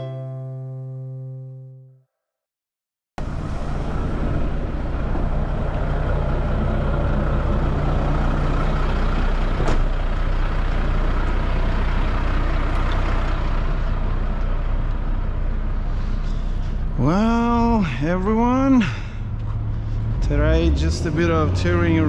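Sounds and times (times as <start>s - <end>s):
diesel truck engine running: 3.2s - 22.0s.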